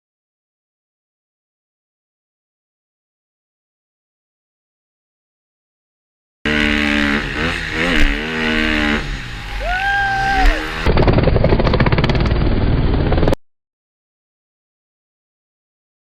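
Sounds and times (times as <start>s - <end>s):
dirt bike engine revving: 6.5s - 13.2s
engine running hard: 6.5s - 13.4s.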